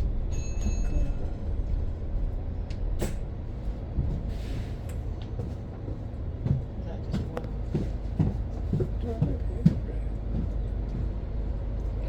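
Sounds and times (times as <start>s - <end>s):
bus cabin low rumble: 0.0s - 12.0s.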